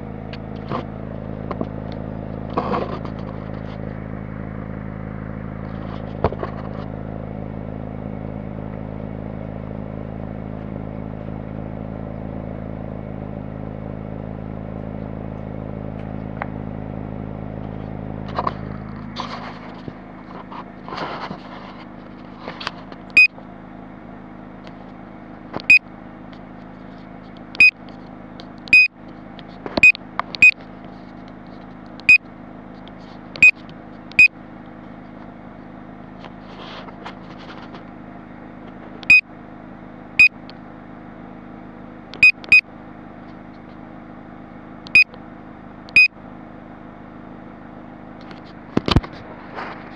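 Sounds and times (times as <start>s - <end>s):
car engine idling: 0.0s - 49.9s.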